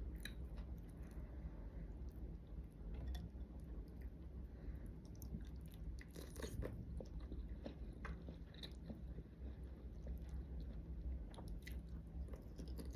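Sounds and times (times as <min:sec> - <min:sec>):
person chewing crunchy food: 0:04.9 - 0:12.9.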